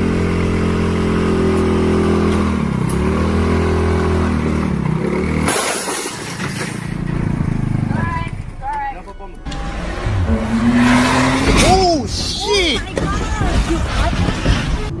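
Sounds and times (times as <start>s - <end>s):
engine droning hum: 6.8s - 13.2s
rushing noise: 9.5s - 15.0s.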